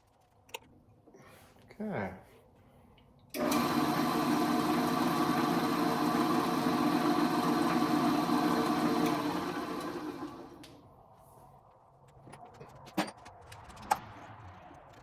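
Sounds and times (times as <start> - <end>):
drill press motor humming: 3.4 - 10.7.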